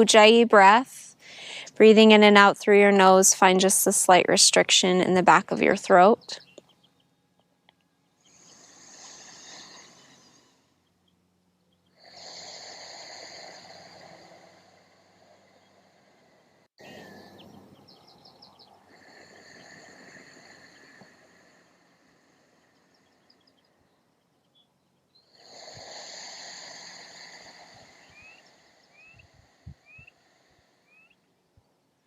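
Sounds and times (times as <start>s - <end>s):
breathing through the nose: 8.2s - 10.7s, 25.4s - 31.0s.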